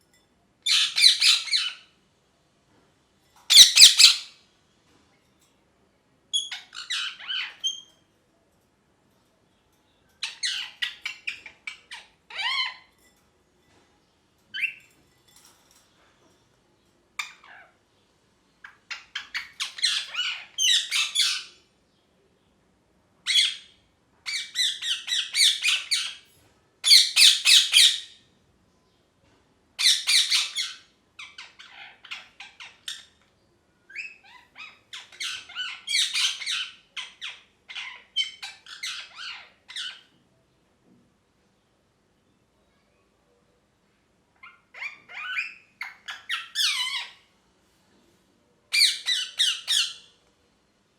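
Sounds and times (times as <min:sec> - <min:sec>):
parakeet chattering and squawking: 0:00.6 - 0:02.0, 0:03.5 - 0:04.4, 0:06.3 - 0:08.0, 0:10.2 - 0:13.0, 0:14.5 - 0:14.8, 0:17.1 - 0:17.8, 0:18.6 - 0:21.7, 0:23.2 - 0:28.2, 0:29.8 - 0:33.3, 0:33.9 - 0:40.2, 0:44.3 - 0:47.3, 0:48.7 - 0:50.2.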